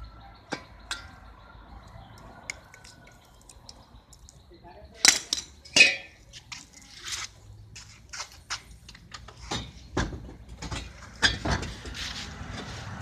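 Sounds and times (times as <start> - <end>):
parts clicking and knocking: 5.0 - 12.7.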